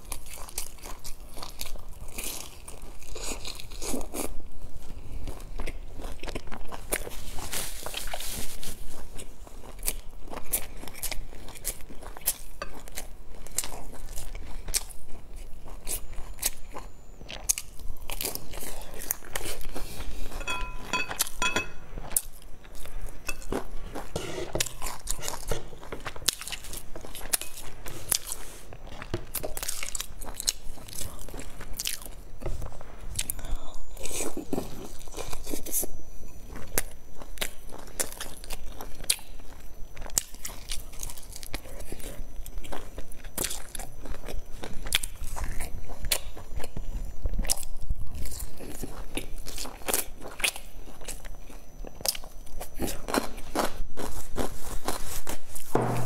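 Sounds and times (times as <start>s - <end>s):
crunchy chewing: 0.0s - 55.7s
light ringing ticks: 20.4s - 21.8s.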